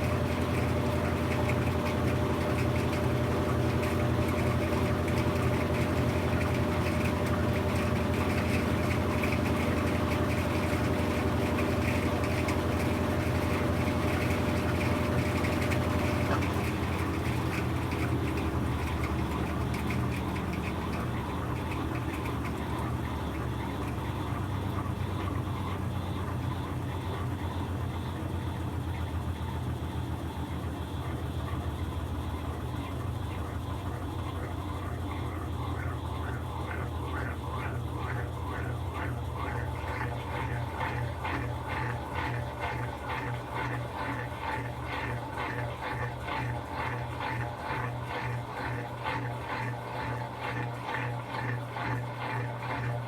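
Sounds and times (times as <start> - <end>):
washing machine running: 0.0 - 53.0.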